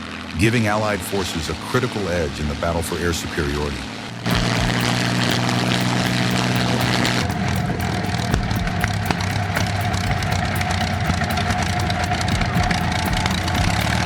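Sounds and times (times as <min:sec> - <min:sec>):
aircraft engine running: 0:03.9 - 0:14.0.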